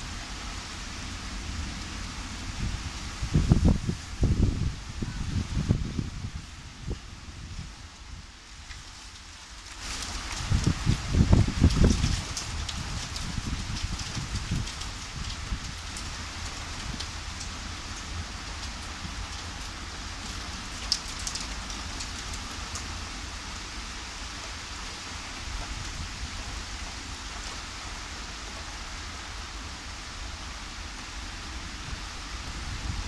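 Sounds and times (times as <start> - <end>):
steady rain falling: 0.0 - 33.0
sharp raindrops striking close: 8.6 - 28.7.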